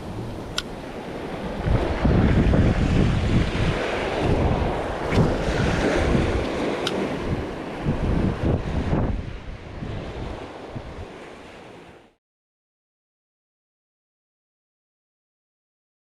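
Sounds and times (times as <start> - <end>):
wind buffeting microphone: 0.0 - 11.6
breaking surf: 0.0 - 11.9.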